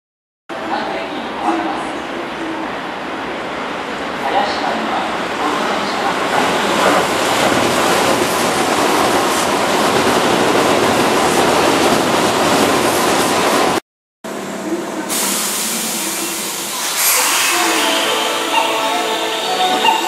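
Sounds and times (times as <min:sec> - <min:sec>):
train wheels rumbling on rail: 0:03.8 - 0:18.7.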